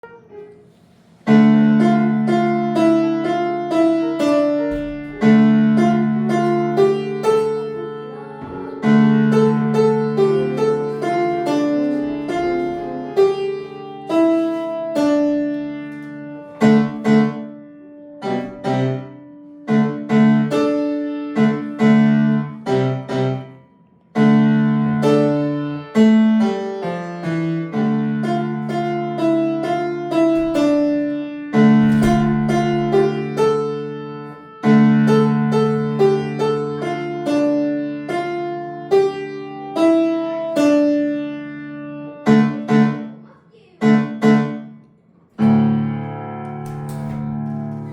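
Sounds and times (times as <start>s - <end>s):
child playing piano: 0.0s - 47.9s.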